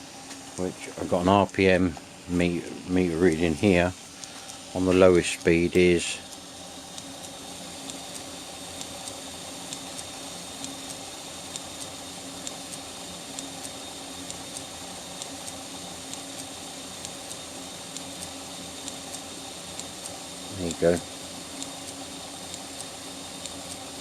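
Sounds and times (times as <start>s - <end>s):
belt grinder running: 1.0s - 24.0s
faint repeating tick: 6.3s - 20.2s, 21.6s - 23.8s.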